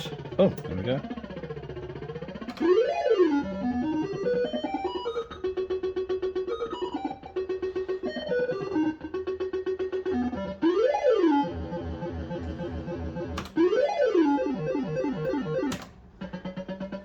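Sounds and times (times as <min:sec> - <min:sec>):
falling electronic notes: 0:00.0 - 0:17.0
sharp clicks: 0:13.3 - 0:13.6.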